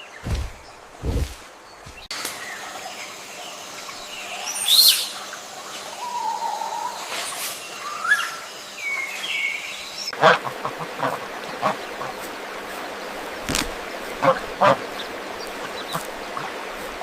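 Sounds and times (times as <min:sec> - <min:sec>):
farmyard fowl calling: 0:10.1 - 0:12.2, 0:13.5 - 0:16.8.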